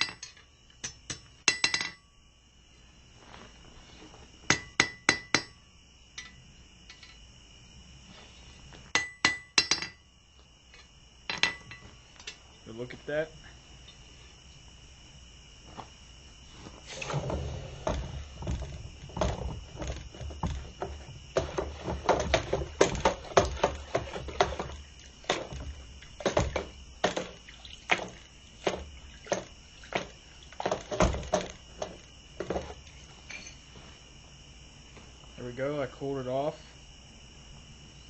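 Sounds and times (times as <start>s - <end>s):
crickets chirring: 0.0s - 38.0s
dull knocks and clunks: 16.6s - 33.7s.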